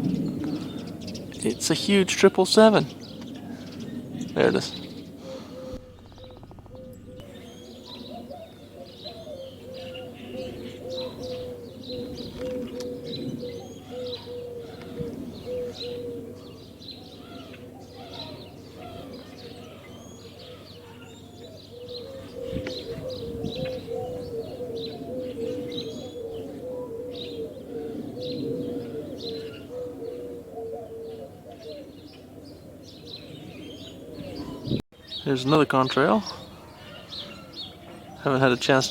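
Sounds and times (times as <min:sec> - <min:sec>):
bird cooing: 0:00.0 - 0:34.8, 0:36.0 - 0:38.9
birds chirping: 0:00.0 - 0:38.9
low background rumble: 0:02.9 - 0:08.3.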